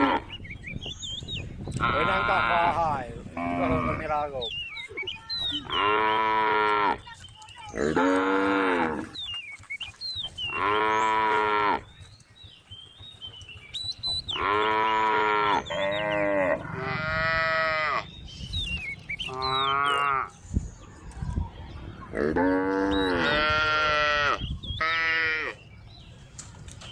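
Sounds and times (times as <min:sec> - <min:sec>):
cow mooing: 0:03.4 - 0:04.1, 0:07.8 - 0:09.1, 0:14.4 - 0:18.1, 0:22.2 - 0:25.6.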